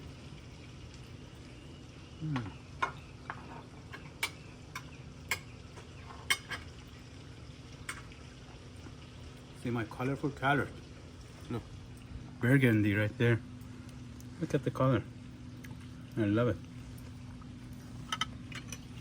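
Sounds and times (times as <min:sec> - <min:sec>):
low steady hum: 0:00.0 - 0:19.0
cutlery clicking on a plate: 0:02.8 - 0:05.5.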